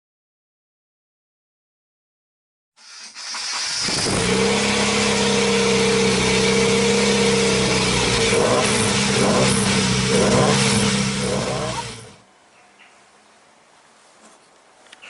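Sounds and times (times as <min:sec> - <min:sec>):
motor whining: 0:02.8 - 0:12.2.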